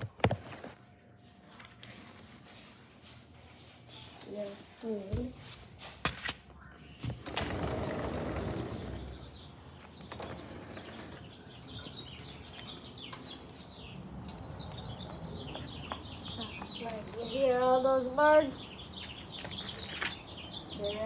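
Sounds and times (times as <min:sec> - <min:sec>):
small birds chirping: 0:06.5 - 0:21.0
rushing handling noise: 0:07.2 - 0:09.2.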